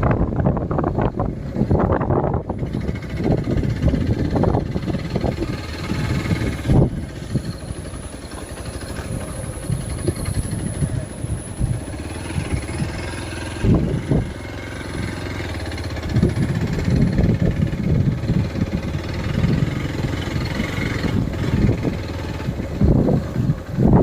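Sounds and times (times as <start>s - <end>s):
vehicle engine running low: 0.0s - 24.0s.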